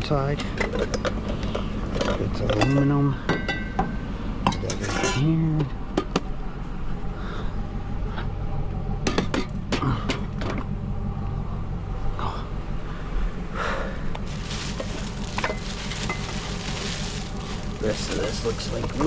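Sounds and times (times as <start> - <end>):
low hum: 0.3 - 19.0
scrap metal clanking: 4.6 - 5.4, 14.3 - 19.0.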